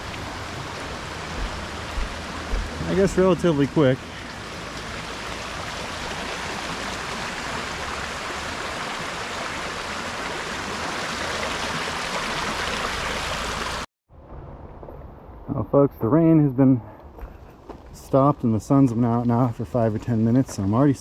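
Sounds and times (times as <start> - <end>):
creek gushing: 0.0 - 13.9.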